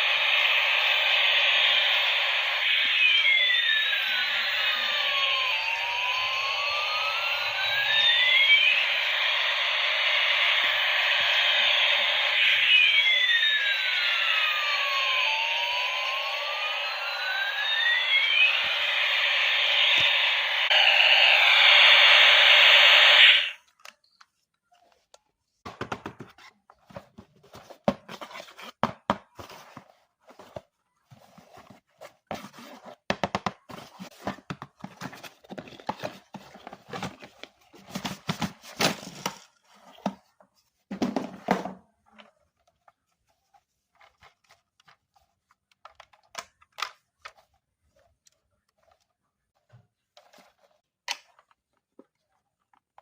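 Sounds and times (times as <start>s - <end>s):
loud electronic buzz: 0.0s - 23.6s.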